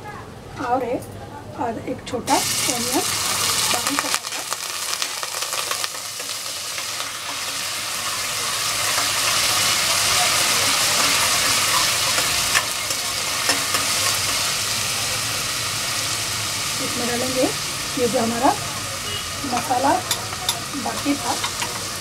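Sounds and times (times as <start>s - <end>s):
oil sizzling in a pot: 2.2s - 22.0s
steel spoon clicking against pot: 20.0s - 21.9s.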